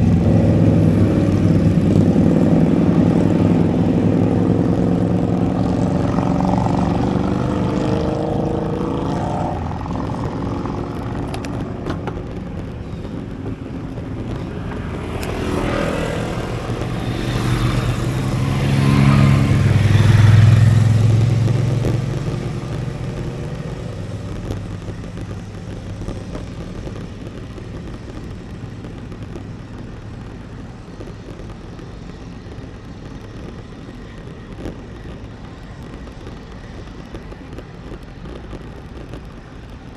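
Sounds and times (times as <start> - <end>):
vehicles passing: 0.0 - 39.9
wind and road noise: 0.0 - 39.9.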